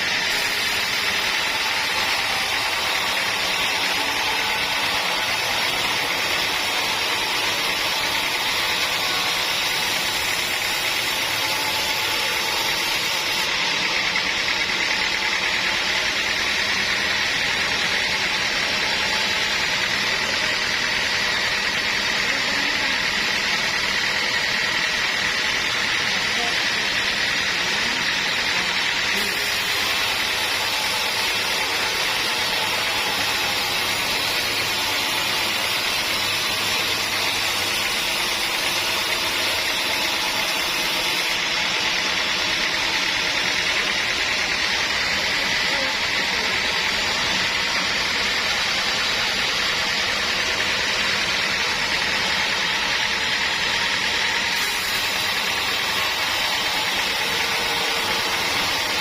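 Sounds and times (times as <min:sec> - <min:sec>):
sawmill machinery whine: 0:00.0 - 0:59.0.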